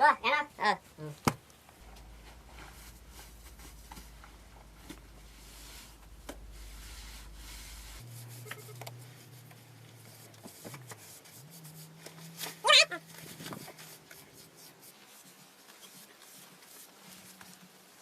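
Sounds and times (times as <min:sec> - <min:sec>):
quiet rubbing and scraping: 0:00.3 - 0:18.0.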